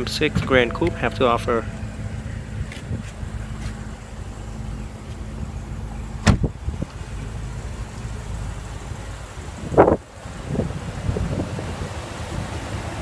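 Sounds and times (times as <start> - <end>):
low rumble: 0.0 - 11.8
car hood latch clicks: 6.2 - 6.5.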